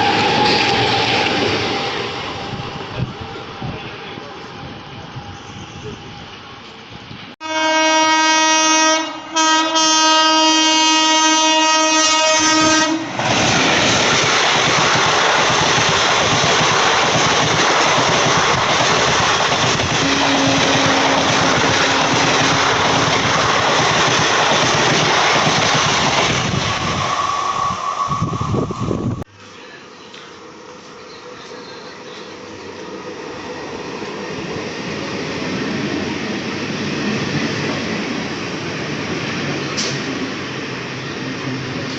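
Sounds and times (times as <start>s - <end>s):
train rushing past: 0.0s - 41.9s
train horn blasts: 7.4s - 13.1s, 20.0s - 22.9s.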